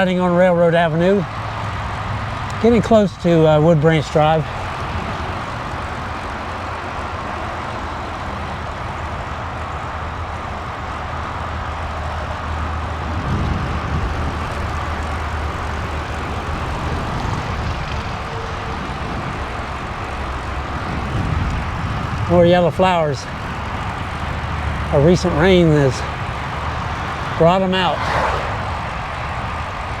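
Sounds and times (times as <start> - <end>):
tyre and road noise: 0.0 - 30.0
wind rushing over microphone: 12.8 - 30.0.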